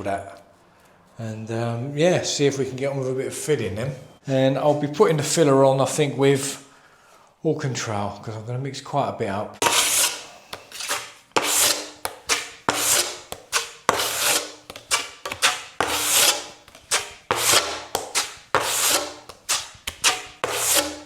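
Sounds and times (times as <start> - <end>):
knife scraping filler: 9.6 - 21.0.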